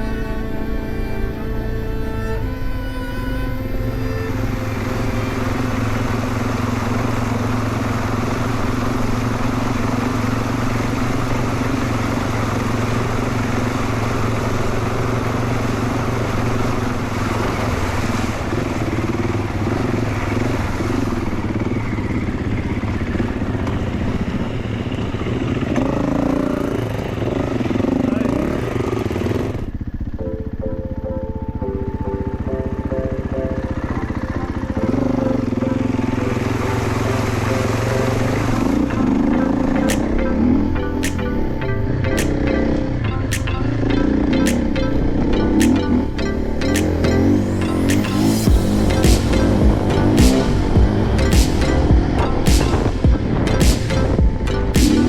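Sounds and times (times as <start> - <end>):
wind and road noise: 0.0 - 55.0
dirt bike engine running: 4.3 - 55.0.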